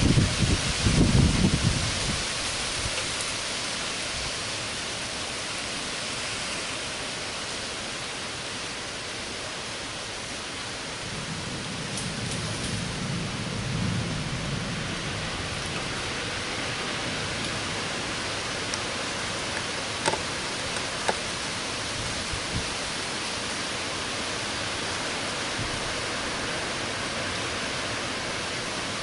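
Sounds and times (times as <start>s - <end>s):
low rolling thunder: 0.0s - 2.9s, 10.9s - 18.4s
heavy rain falling: 0.0s - 29.0s.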